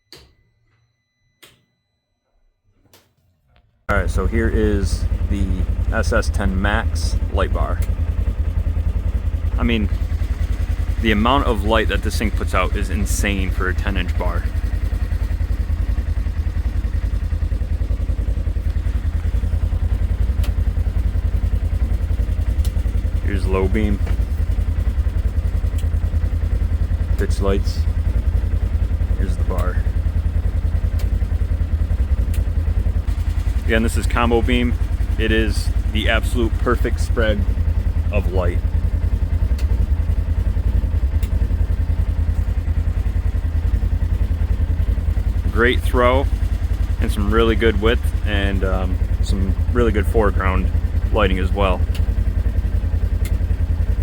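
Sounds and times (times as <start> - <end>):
engine idling: 3.9 - 54.0
sharp click: 32.3 - 32.5, 39.5 - 39.8, 41.1 - 41.4.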